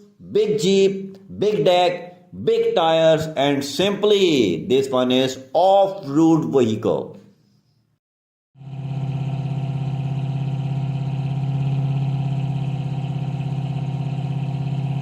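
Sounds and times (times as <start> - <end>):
vehicle engine idling: 8.6 - 15.0.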